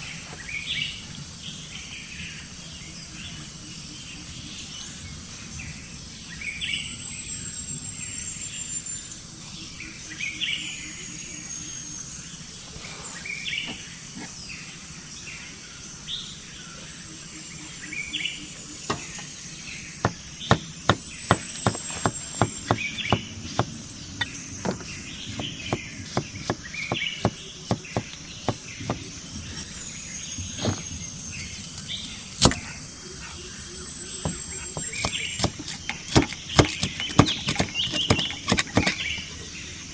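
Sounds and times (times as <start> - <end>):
sharp knocks: 20.0 - 29.8, 31.6 - 32.7, 34.2 - 39.6.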